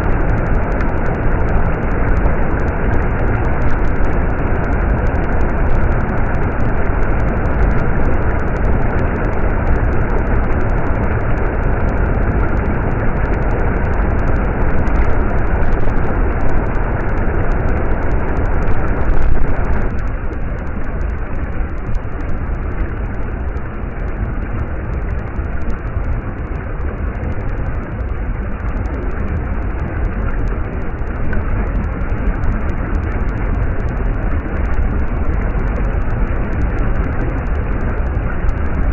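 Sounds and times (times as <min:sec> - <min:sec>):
stream water rushing: 0:14.2 - 0:21.9.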